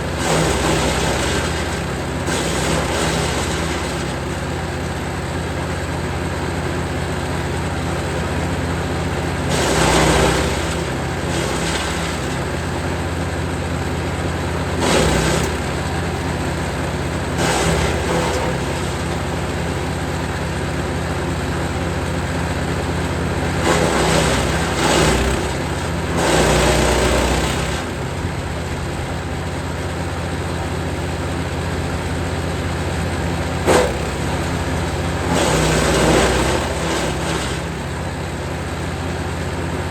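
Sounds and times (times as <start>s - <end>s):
wood chipper running: 0.0s - 39.9s
branches crunching and shredding: 9.5s - 12.6s, 14.8s - 15.8s, 16.4s - 19.2s, 23.5s - 28.0s.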